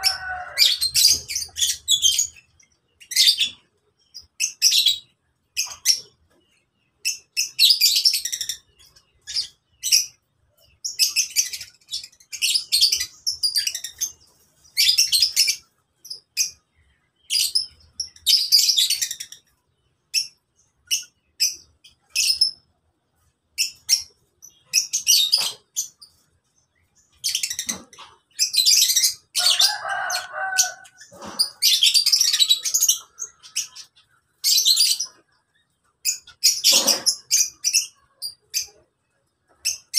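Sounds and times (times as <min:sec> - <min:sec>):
lower-pitched bird call: 0:00.0 - 0:01.9
lovebirds chirping: 0:00.0 - 0:39.9.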